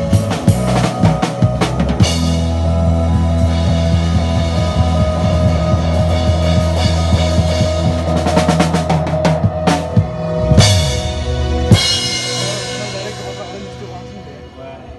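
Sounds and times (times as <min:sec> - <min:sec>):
band playing held chord: 0:00.0 - 0:14.9
sharp drum kit strikes: 0:06.4 - 0:13.9
sustained bass note: 0:09.9 - 0:14.0.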